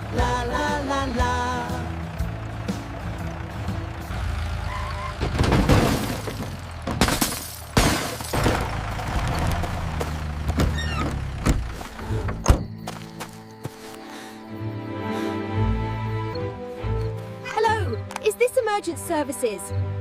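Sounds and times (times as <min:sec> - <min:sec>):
low engine hum: 0:00.0 - 0:18.2
cartoon crashes and knocks: 0:05.2 - 0:08.6.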